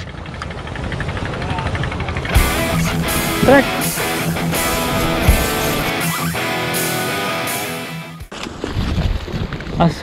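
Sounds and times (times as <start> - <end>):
strummed guitar music: 2.3 - 8.3.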